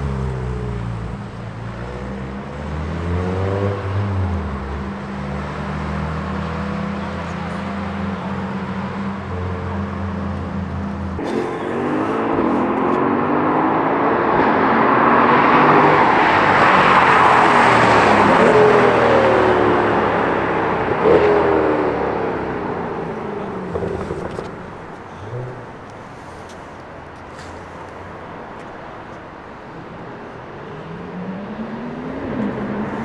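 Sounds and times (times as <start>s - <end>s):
car engine accelerating hard: 0.0s - 26.6s
exhaust pop: 23.4s - 26.0s.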